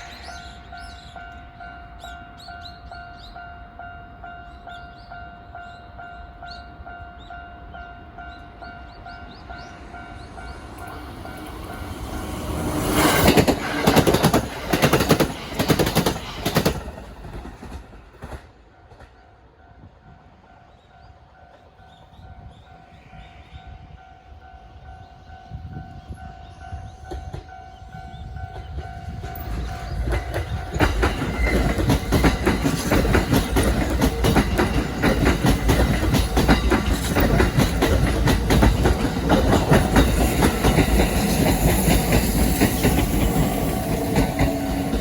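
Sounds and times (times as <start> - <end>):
electric train rumble: 0.0 - 45.0
wheels clattering over rail joints: 10.7 - 19.2, 28.4 - 45.0.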